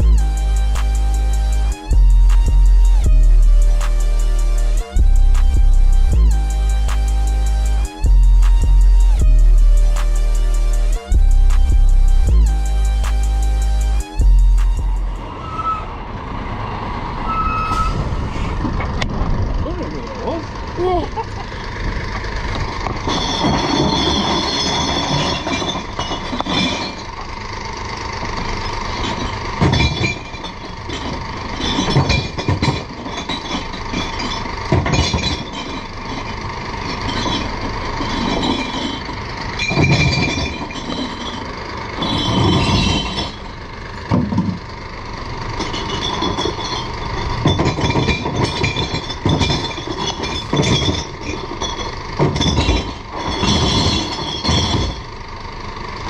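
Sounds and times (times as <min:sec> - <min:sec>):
truck engine running: 0:00.0 - 0:56.0
glass bottles clinking and crashing: 0:22.9 - 0:27.3, 0:28.4 - 0:44.6, 0:45.5 - 0:55.2.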